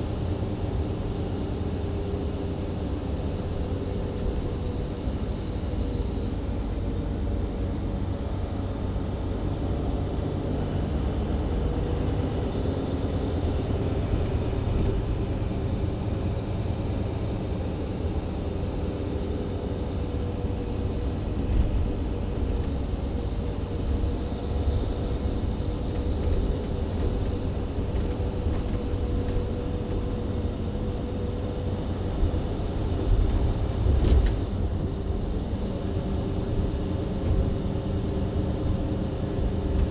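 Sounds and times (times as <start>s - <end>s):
bus engine running: 0.0s - 39.9s
road rumble: 0.0s - 39.9s
rattles and clicks: 24.9s - 35.7s, 38.6s - 39.9s.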